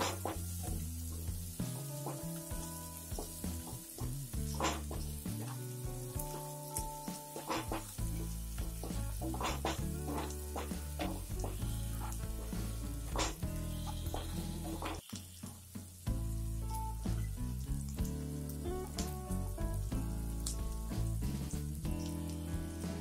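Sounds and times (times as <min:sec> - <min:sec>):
food sizzling in hot oil: 0:00.0 - 0:23.0
spatula scraping pan: 0:06.2 - 0:15.0.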